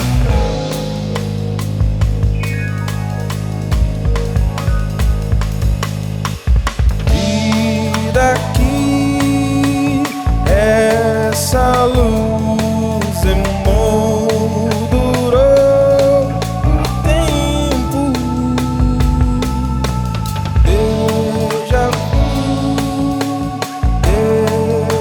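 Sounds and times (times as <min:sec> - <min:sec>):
drum kit: 0:00.0 - 0:25.0
keyboard chords: 0:00.0 - 0:25.0
person singing: 0:07.1 - 0:25.0.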